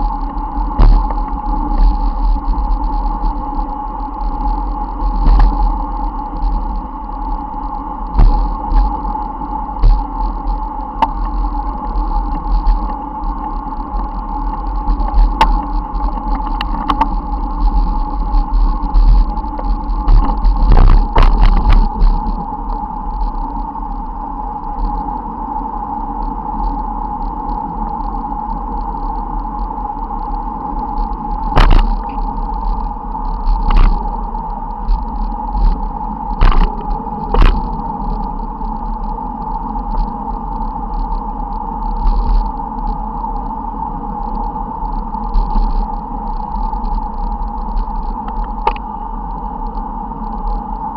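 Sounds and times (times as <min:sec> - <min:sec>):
bicycle rumbling on road: 0:00.0 - 0:50.9
bicycle clicks and knocks: 0:05.2 - 0:05.6, 0:18.6 - 0:22.2, 0:36.4 - 0:37.8, 0:48.0 - 0:48.9.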